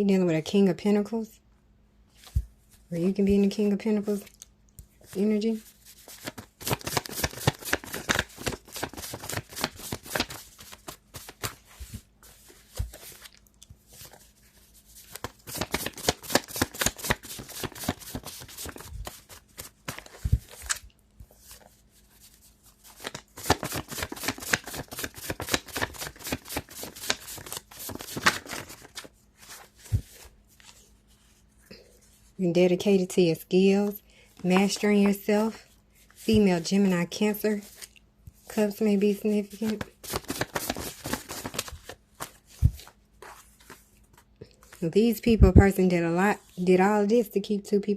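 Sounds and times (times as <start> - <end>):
cards being shuffled: 4.2 - 31.2, 39.2 - 44.8.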